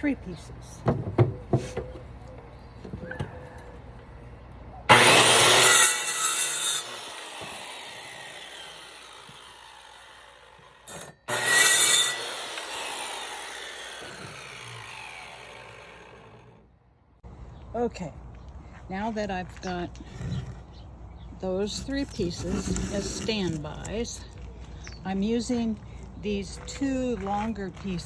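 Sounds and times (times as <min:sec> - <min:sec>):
power saw cutting stick: 0:04.9 - 0:16.6, 0:21.8 - 0:23.9
saw blade winding down whine: 0:04.9 - 0:16.6.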